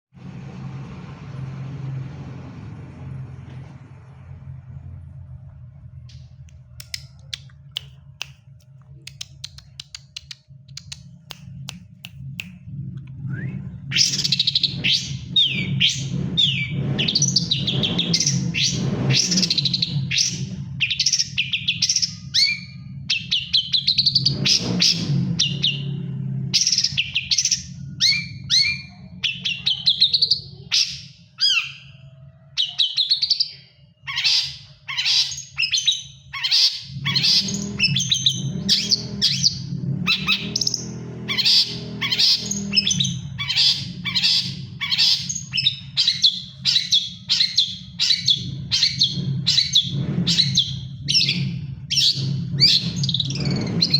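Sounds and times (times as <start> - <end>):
bird chirping and whistling: 13.3 - 32.0, 32.6 - 53.9.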